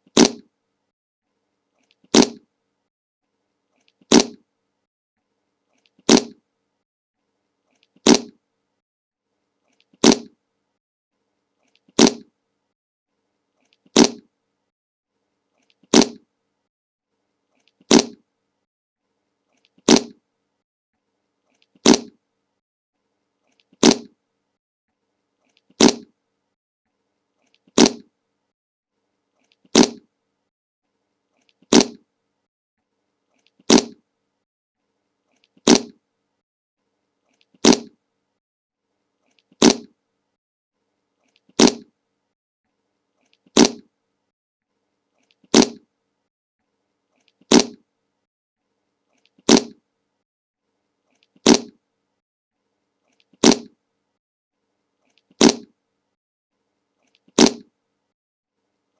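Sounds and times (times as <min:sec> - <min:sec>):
fart sound effect: 0:00.1 - 0:00.5, 0:02.1 - 0:02.4, 0:04.1 - 0:04.4, 0:06.1 - 0:06.4, 0:08.0 - 0:08.4, 0:10.0 - 0:10.4, 0:12.0 - 0:12.3, 0:13.9 - 0:14.3, 0:15.9 - 0:16.2, 0:17.9 - 0:18.2, 0:19.8 - 0:20.2, 0:21.8 - 0:22.2, 0:23.8 - 0:24.1, 0:25.8 - 0:26.1, 0:27.8 - 0:28.1, 0:29.7 - 0:30.0, 0:31.7 - 0:32.0, 0:33.7 - 0:34.0, 0:35.7 - 0:36.0, 0:37.6 - 0:38.0, 0:39.6 - 0:39.9, 0:41.6 - 0:41.9, 0:43.6 - 0:43.9, 0:45.5 - 0:45.8, 0:47.5 - 0:47.8, 0:49.5 - 0:49.8, 0:51.4 - 0:51.7, 0:53.4 - 0:53.7, 0:55.4 - 0:55.7, 0:57.4 - 0:57.6.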